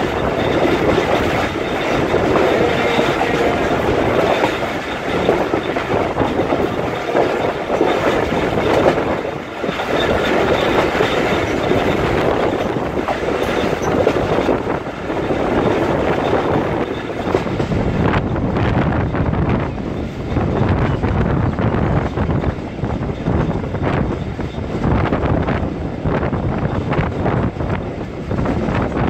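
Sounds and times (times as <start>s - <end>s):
steel wheels on rails: 0.0s - 29.0s.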